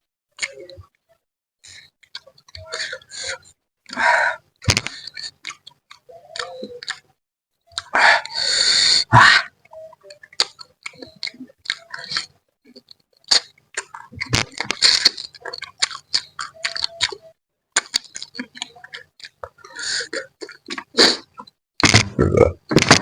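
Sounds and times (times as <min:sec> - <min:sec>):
wet chewing and lip smacks: 0:04.8 - 0:07.0, 0:09.7 - 0:21.5.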